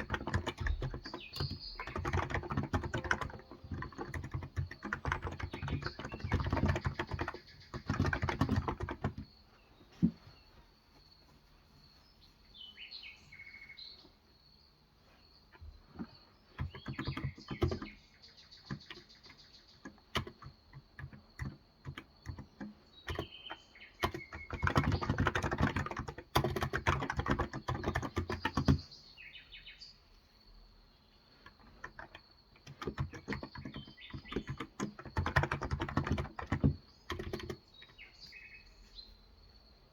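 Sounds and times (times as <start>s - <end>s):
keyboard typing: 0.0s - 9.3s, 15.8s - 18.0s, 18.6s - 28.8s, 31.4s - 38.0s
birds chirping: 0.0s - 30.1s, 30.9s - 39.7s.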